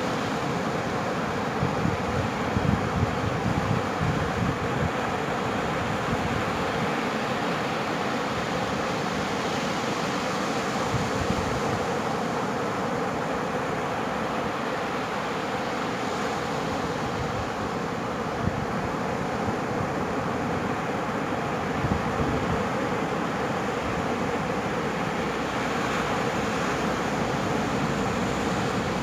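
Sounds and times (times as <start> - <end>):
surf roaring on beach: 0.0 - 29.0
wind buffeting microphone: 1.6 - 5.0.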